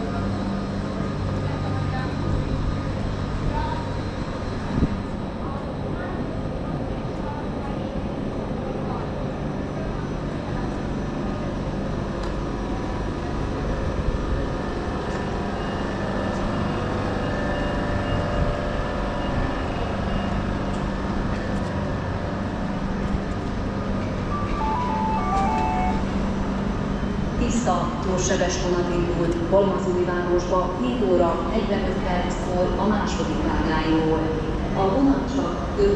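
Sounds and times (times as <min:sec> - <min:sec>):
busy railway station rumble: 0:00.0 - 0:35.9
low machine hum: 0:00.0 - 0:35.9
descending public address chime: 0:24.2 - 0:26.3.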